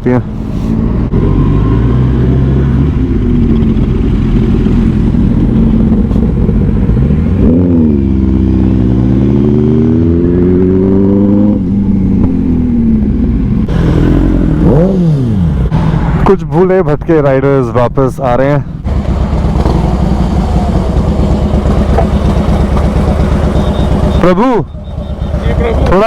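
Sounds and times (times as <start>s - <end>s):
wind and road noise: 0.0s - 26.0s
superbike engines running: 18.7s - 26.0s.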